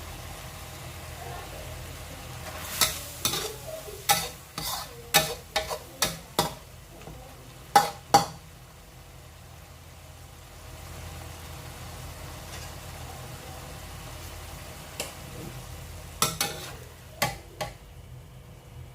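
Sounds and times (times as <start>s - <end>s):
metal spatula clanking on frying pan: 2.8s - 7.1s, 7.7s - 8.4s, 16.2s - 17.8s.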